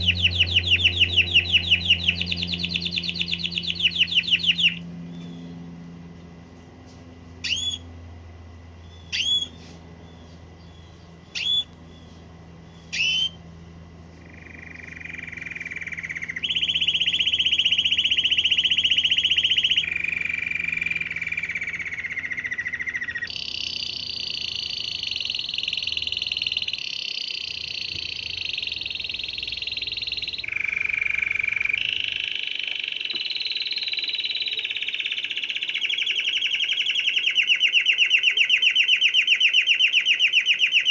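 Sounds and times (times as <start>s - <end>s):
canary singing: 0.0s - 6.2s, 7.4s - 40.9s.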